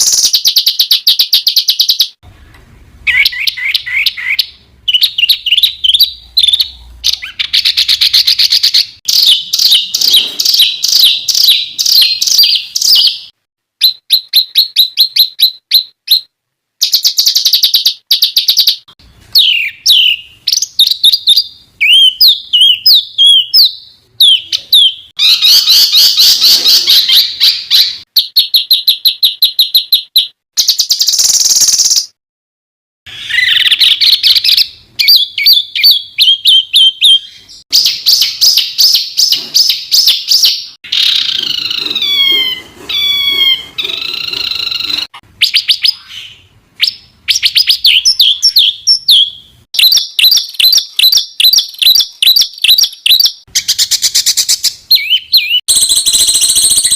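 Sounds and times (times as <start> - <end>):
birds chirping and trilling: 0.0 - 32.1, 33.1 - 56.9.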